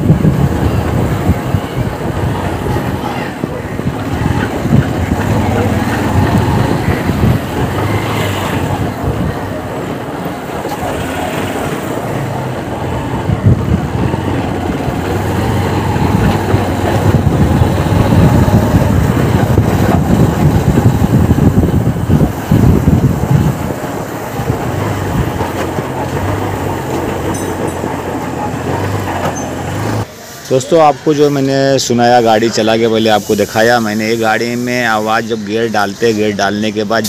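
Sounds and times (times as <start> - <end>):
gear and bearing noise: 3.8 - 30.1.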